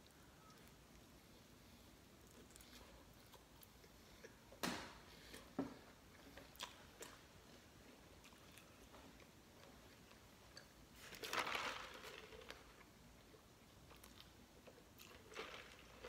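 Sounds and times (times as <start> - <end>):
person chewing food: 0.0 - 11.2, 12.2 - 16.0.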